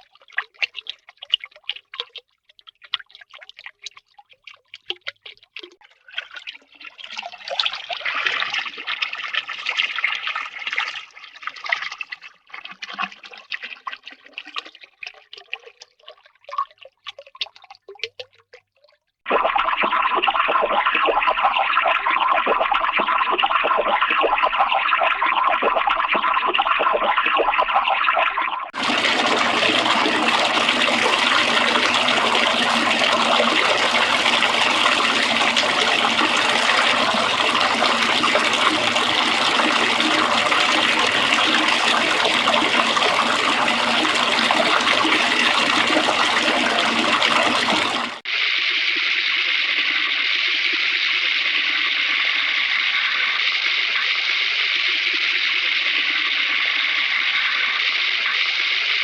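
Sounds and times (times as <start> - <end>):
duller running water: 0.0 - 48.3
rushing running water: 28.8 - 48.2.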